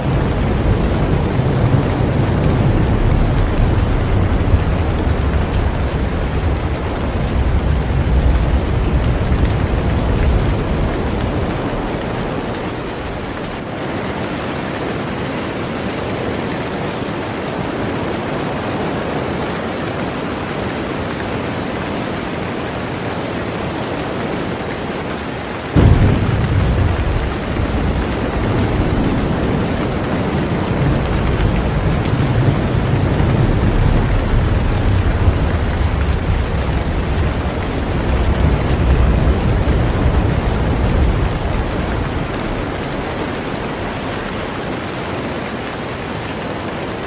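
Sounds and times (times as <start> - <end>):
thunder rumbling: 0.0 - 13.8, 25.6 - 47.0
heavy rain on a boat: 0.0 - 47.0.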